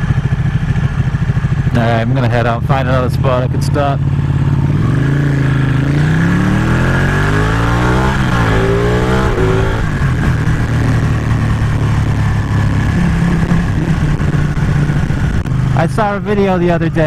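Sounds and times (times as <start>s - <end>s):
motorcycle engine revving: 0.0s - 17.0s
wind noise: 4.8s - 15.8s.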